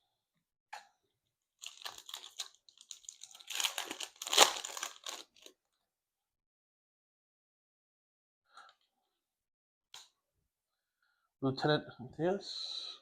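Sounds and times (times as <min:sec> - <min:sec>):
foil wrapper crinkling and tearing: 0:01.6 - 0:05.5.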